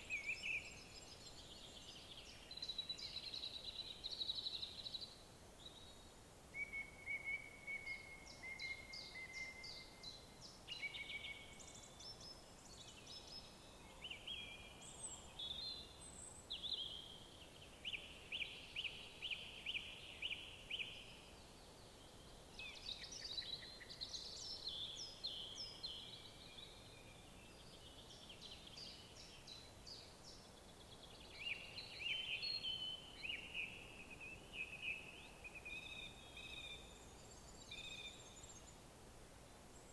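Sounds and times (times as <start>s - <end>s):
songbirds singing: 0.0s - 38.9s
faint background hiss: 0.0s - 39.9s.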